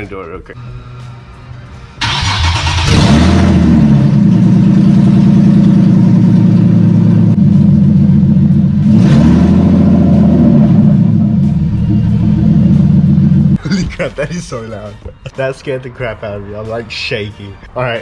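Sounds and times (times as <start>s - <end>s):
loud car engine starting and idling: 1.9s - 13.6s.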